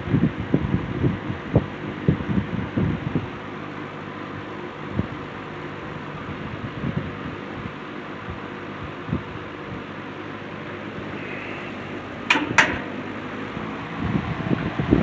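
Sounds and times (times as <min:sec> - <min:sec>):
box fan whirring: 0:08.4 - 0:14.5.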